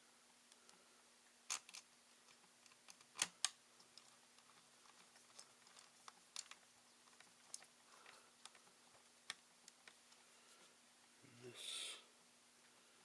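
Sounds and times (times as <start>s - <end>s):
laptop parts clicking: 1.5s - 10.0s.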